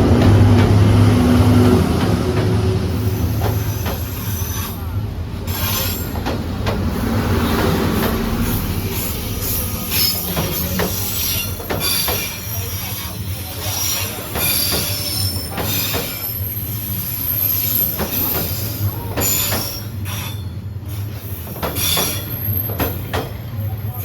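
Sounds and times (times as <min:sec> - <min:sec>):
train rumble: 0:00.0 - 0:24.0
metallic wheel squealing: 0:08.4 - 0:20.5.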